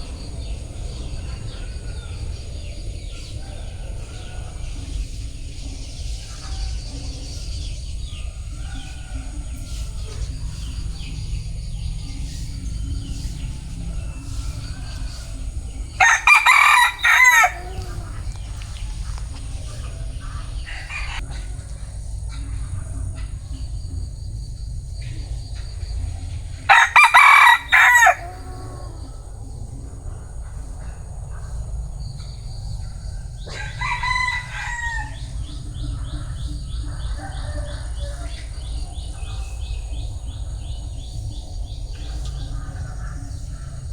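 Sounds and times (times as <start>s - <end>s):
steady low rumble: 0.0s - 43.9s
rooster crowing: 7.6s - 11.4s, 12.0s - 18.9s, 19.6s - 21.2s, 26.7s - 29.5s, 33.4s - 39.1s.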